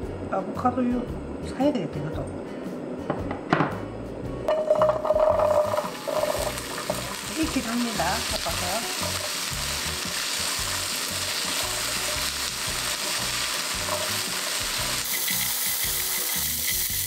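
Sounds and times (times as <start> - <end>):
garlic sizzling in oil: 4.5 - 17.0
spatula stirring in pan: 10.6 - 16.9.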